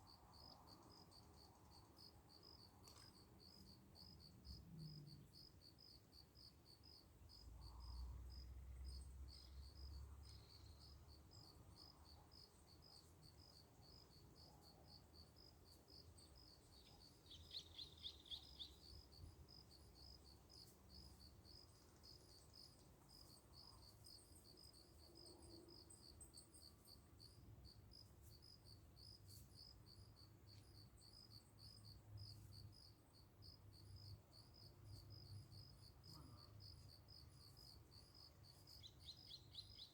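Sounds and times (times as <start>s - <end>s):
insect chirping: 15.1s - 39.9s.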